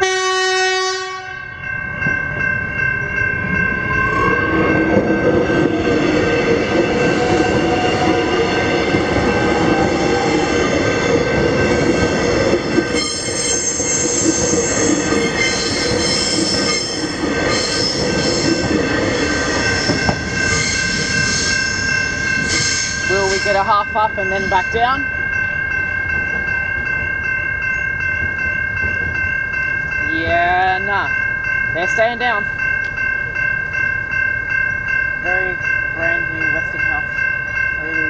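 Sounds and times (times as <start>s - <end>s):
electric train rumbling past: 0.0s - 38.0s
electronic crossing warning bells: 0.0s - 38.0s
train wheel squeal: 12.8s - 23.6s.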